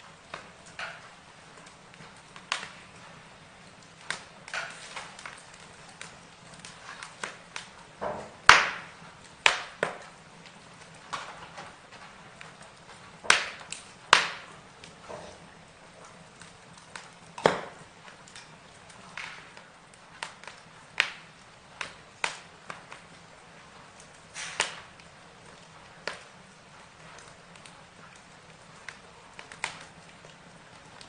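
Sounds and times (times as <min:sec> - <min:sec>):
wood fire crackling: 0:00.0 - 0:31.0.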